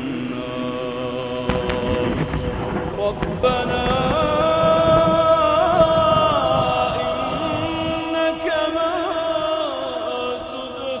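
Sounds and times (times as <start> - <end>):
man chanting melodic recitation: 0.0 - 11.0
low rumble: 1.5 - 8.3.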